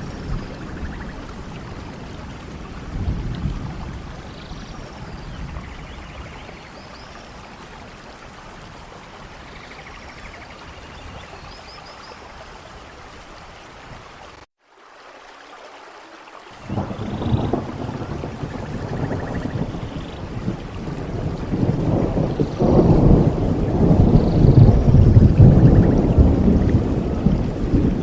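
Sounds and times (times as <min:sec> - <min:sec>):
rumbling thunder: 0:00.0 - 0:06.6, 0:16.6 - 0:28.0
heavy rain: 0:00.0 - 0:15.3, 0:16.1 - 0:28.0.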